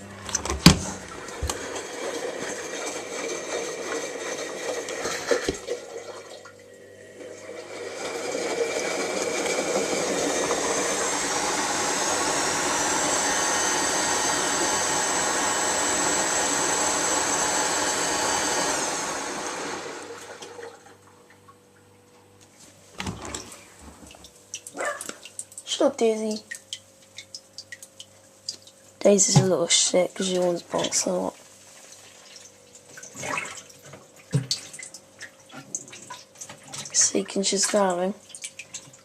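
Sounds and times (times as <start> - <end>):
washing machine motor whine: 0.0 - 26.6, 29.0 - 31.4
water swishing in washing machine: 0.0 - 39.0.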